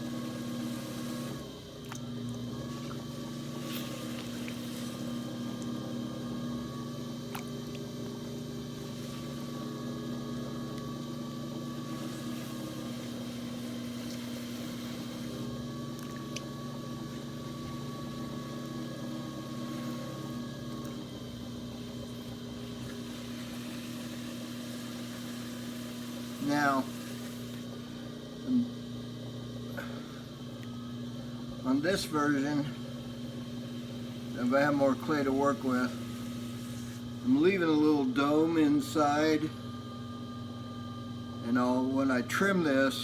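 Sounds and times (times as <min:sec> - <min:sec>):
potter's wheel motor humming: 0:00.0 - 0:43.0.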